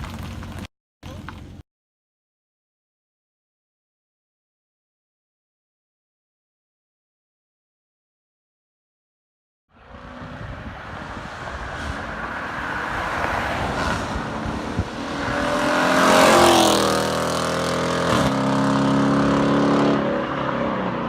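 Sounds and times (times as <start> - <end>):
loud car engine flyby: 9.7 - 21.0.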